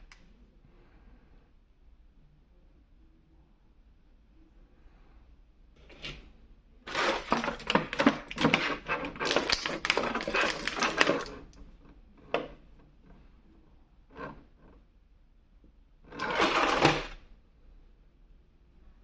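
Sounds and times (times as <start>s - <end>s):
packaging crackling and clicking: 6.9s - 11.6s.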